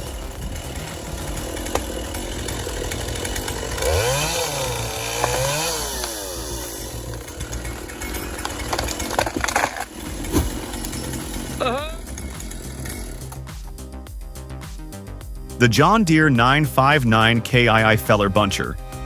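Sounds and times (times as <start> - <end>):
chainsaw revving: 0.0 - 13.9.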